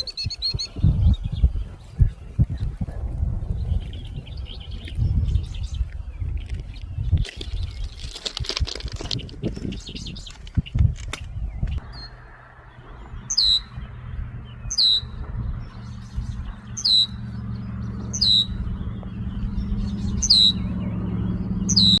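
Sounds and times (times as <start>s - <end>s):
bird chirping: 0.0s - 8.1s, 9.0s - 22.0s
steady low hum: 11.8s - 22.0s.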